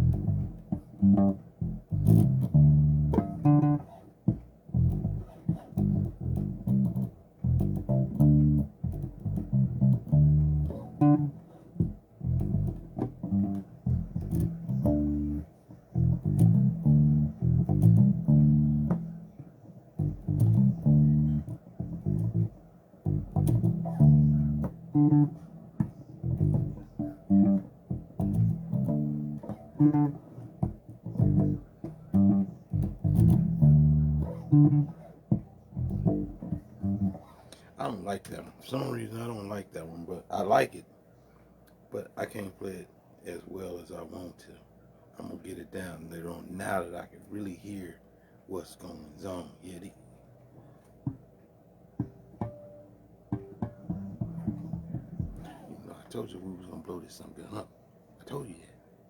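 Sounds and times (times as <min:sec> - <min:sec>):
bass guitar plucked notes: 0:00.0 - 0:19.4, 0:20.0 - 0:37.4, 0:52.0 - 0:55.7.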